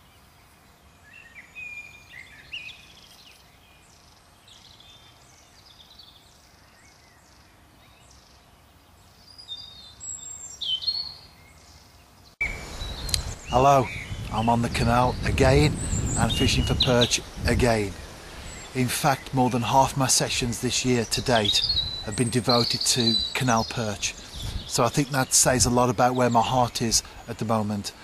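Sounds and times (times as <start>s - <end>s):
faint steady hiss: 0.0s - 28.0s
outdoor background noise: 0.0s - 28.0s
songbirds singing: 0.0s - 28.0s.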